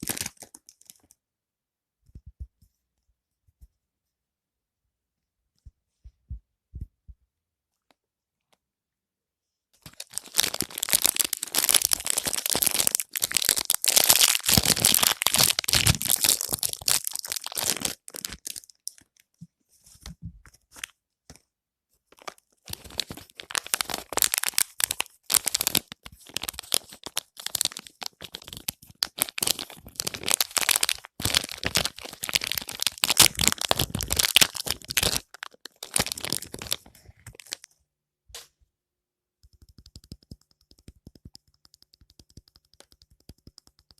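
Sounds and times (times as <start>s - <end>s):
plastic wrapping crinkling and tearing: 0.0s - 1.1s, 9.8s - 19.2s, 22.1s - 37.7s.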